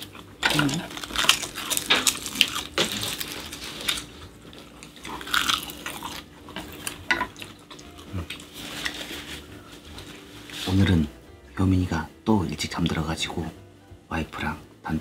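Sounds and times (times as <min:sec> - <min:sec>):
chewing food: 0:00.0 - 0:10.7.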